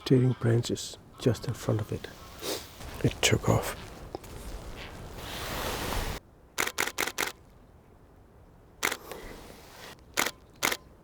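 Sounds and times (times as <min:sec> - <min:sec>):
rushing hiss: 0:02.4 - 0:06.2
camera shutter clicks: 0:06.6 - 0:07.4, 0:08.8 - 0:09.2, 0:10.2 - 0:10.9.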